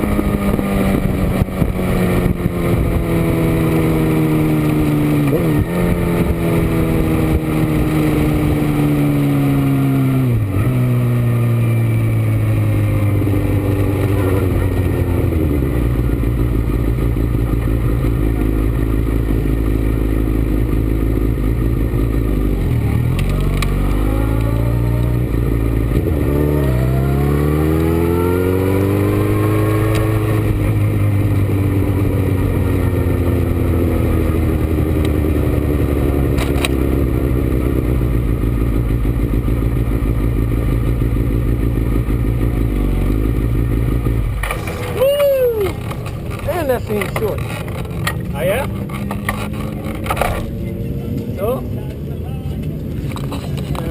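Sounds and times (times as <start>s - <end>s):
wind noise: 0.0s - 8.8s
motorcycle engine accelerating: 0.0s - 53.9s.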